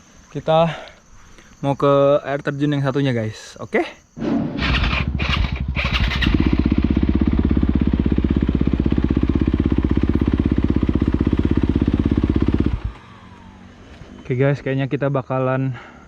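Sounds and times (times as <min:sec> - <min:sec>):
dirt bike engine running: 0:04.2 - 0:14.3.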